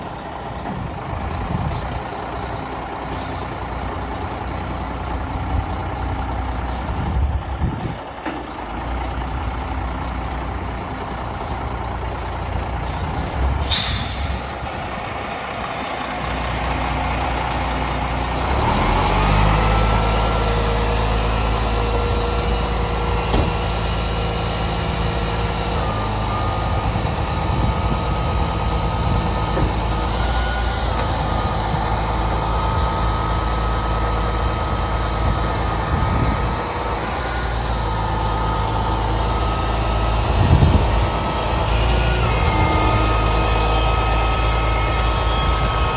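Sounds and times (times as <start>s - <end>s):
diesel engine running: 0.0s - 45.9s
short sharp air hiss: 12.9s - 14.6s.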